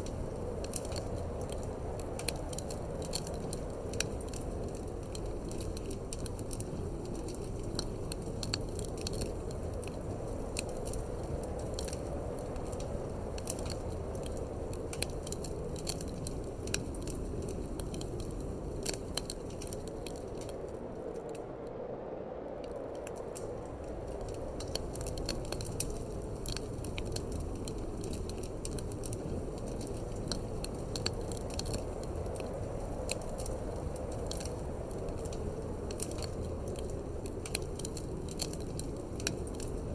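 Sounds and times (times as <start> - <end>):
wood fire crackling and popping: 0.0 - 21.7, 22.5 - 39.9
low wind rumble: 0.0 - 39.9.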